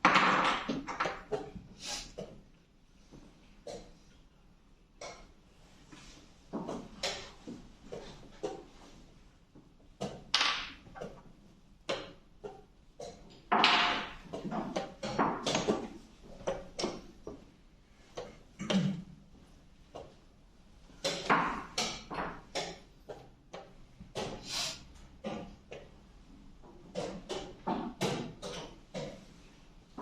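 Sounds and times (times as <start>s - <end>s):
chess pieces knocking on board: 0.0s - 1.6s, 10.0s - 11.3s, 11.9s - 17.4s, 21.0s - 24.4s.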